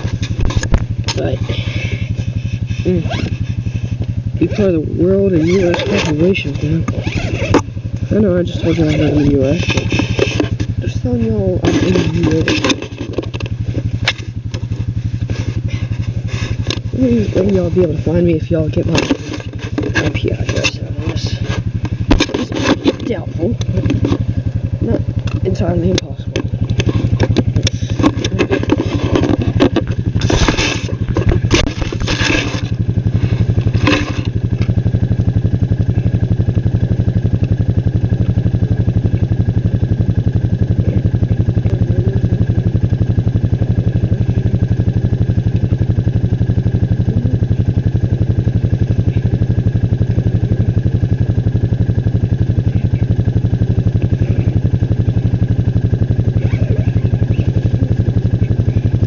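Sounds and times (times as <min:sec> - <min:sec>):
scraping and clattering rattles: 0:00.0 - 0:34.8
small engine droning: 0:00.0 - 0:59.0.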